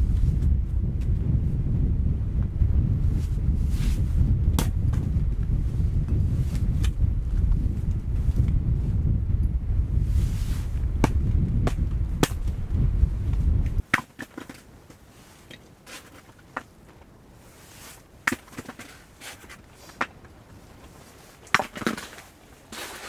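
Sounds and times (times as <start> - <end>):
wind rumbling on microphone: 0.0 - 13.9
sharp knocks and crackles: 10.7 - 14.6.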